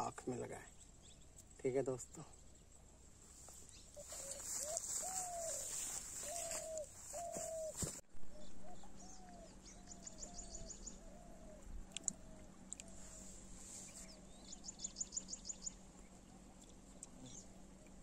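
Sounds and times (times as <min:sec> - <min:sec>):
bird hooting call: 0:03.7 - 0:15.4.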